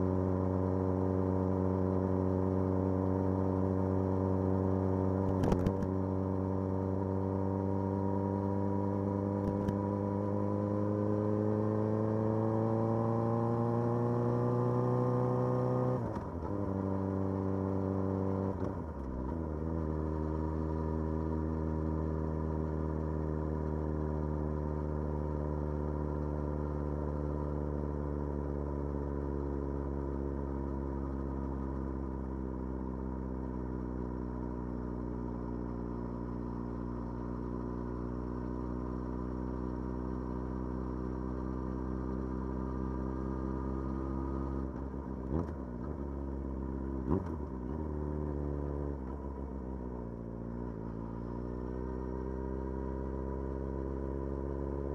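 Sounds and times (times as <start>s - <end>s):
sharp click: 5.3s - 5.9s.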